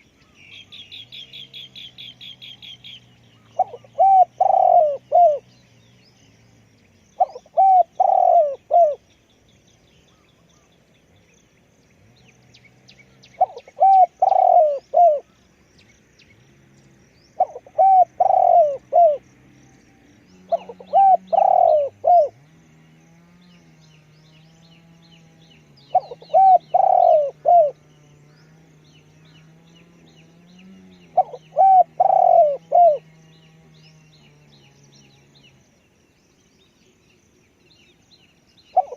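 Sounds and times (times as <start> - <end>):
small birds chirping faintly: 0.0 - 38.9
dove cooing: 3.5 - 5.5, 7.2 - 9.0, 13.4 - 15.4, 17.4 - 19.2, 20.4 - 22.4, 25.7 - 28.6, 30.6 - 33.2, 38.7 - 38.9.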